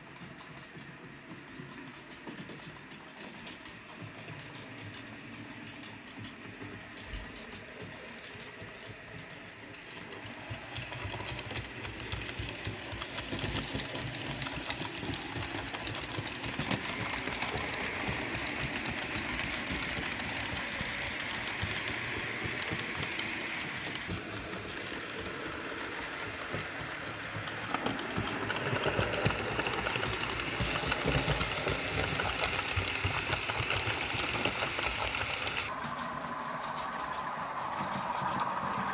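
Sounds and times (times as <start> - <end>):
wheels clicking on rails: 0.0 - 38.9
model train motor whirring: 8.4 - 35.7.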